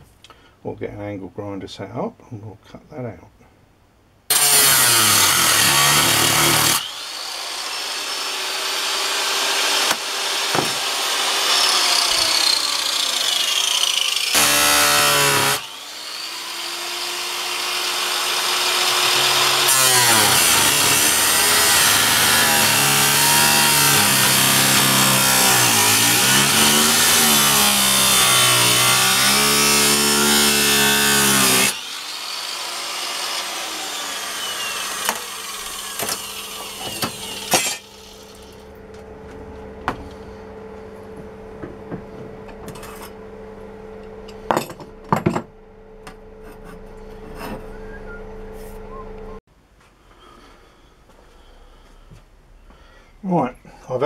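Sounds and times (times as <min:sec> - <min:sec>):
angle grinder cutting steel: 0:04.3 - 0:38.8.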